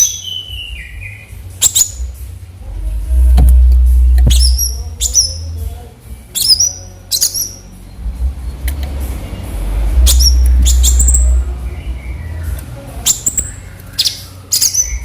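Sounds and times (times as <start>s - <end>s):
low rumble: 2.0s - 6.3s, 9.3s - 12.6s
bird giving high-pitched calls: 4.2s - 5.5s, 10.0s - 12.2s.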